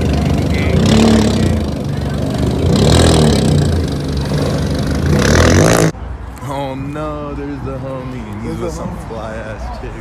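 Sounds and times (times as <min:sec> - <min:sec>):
engine revving through loud exhaust: 0:00.0 - 0:06.0.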